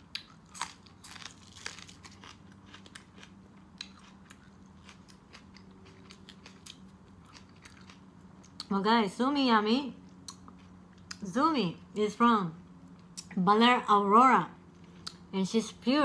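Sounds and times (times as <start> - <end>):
crunching green onion: 0.0 - 8.7
chewing: 0.1 - 8.7.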